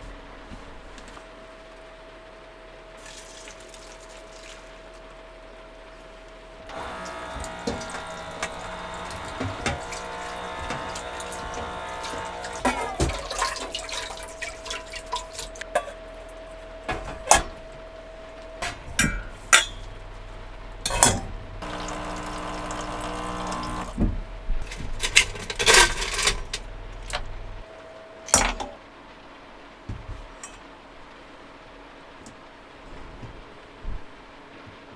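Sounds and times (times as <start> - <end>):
water running from sink tap: 3.0 - 4.8, 6.7 - 16.0, 18.2 - 27.6
dishes and utensils clinking: 6.8 - 16.0, 18.6 - 23.9.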